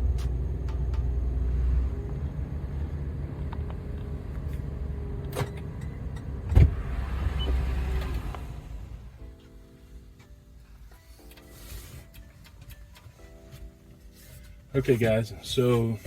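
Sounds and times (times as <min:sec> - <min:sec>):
car engine idling: 0:00.0 - 0:10.0
music: 0:08.8 - 0:16.0.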